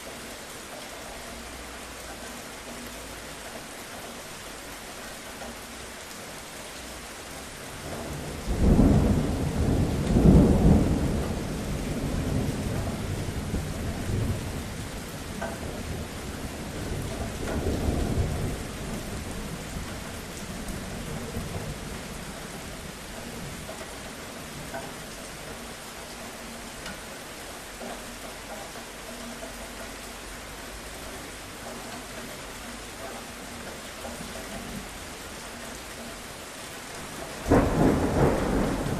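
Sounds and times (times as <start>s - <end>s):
steady rain: 0.0s - 38.9s
thunder rumbling: 7.7s - 25.2s, 37.0s - 38.9s.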